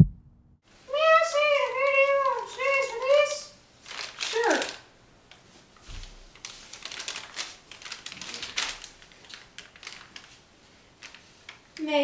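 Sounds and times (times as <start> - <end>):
low thump: 0.0 - 0.5
paper puppets clicking and rustling: 1.3 - 10.4, 11.0 - 12.0.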